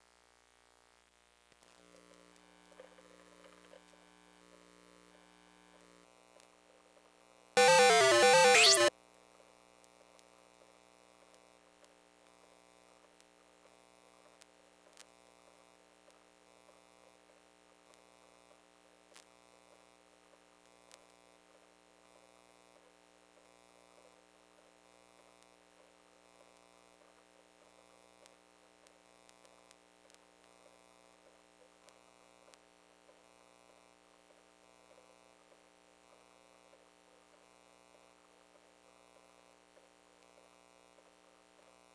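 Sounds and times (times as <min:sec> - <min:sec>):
loud wavering electronic sound: 0:07.6 - 0:08.9.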